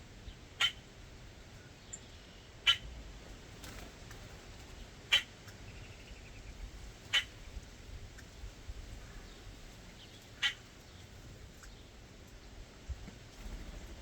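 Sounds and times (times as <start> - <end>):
bird chip calls: 0.6 - 0.9, 1.9 - 2.9, 5.1 - 7.4, 10.0 - 11.8.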